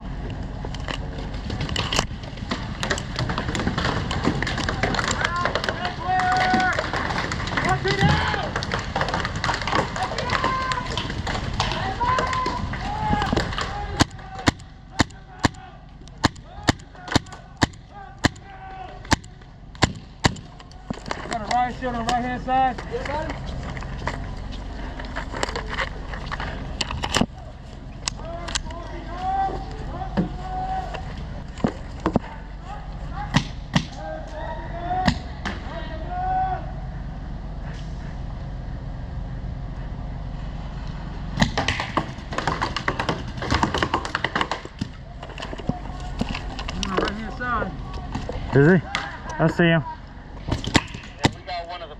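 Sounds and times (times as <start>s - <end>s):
low rumble: 0.0s - 51.9s
paintball marker firing: 19.1s - 20.6s.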